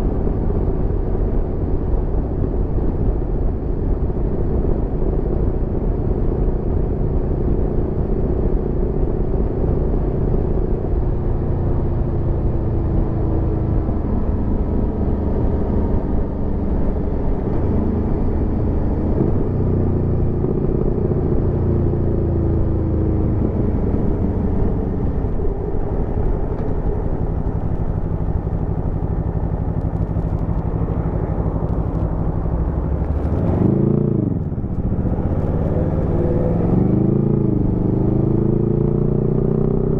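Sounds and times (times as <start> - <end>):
motorcycle engine running: 14.7 - 39.9.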